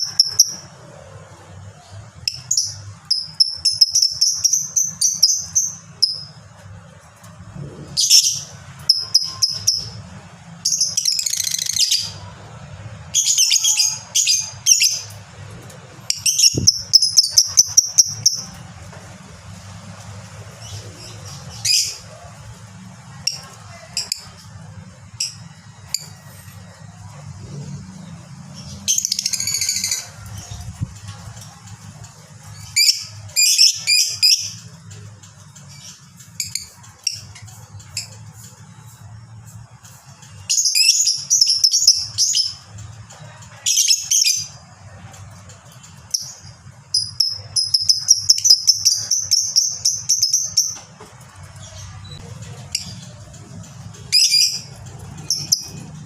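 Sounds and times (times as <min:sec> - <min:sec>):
lovebird chattering: 0:02.2 - 0:06.3, 0:08.0 - 0:10.0, 0:16.1 - 0:18.6, 0:46.0 - 0:50.8, 0:54.1 - 0:55.8.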